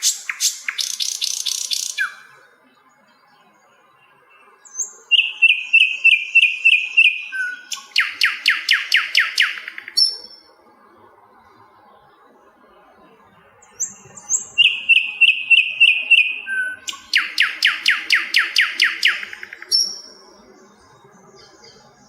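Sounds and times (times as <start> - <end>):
short repeated bird whistles: 0.0 - 2.3, 4.7 - 10.3, 13.8 - 20.1
flycatcher singing: 0.0 - 12.1, 12.7 - 22.0
rapid descending bird trill: 13.8 - 20.0.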